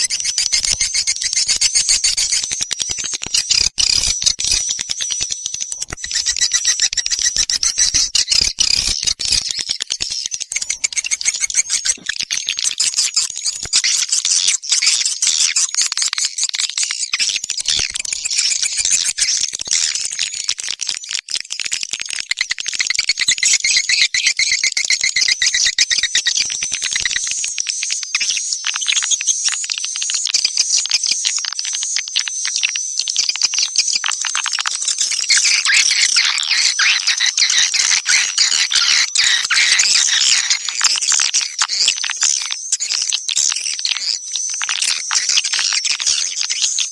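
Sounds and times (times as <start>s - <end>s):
swiftlet calls clicking and twittering: 0.0s - 27.4s, 28.2s - 46.9s.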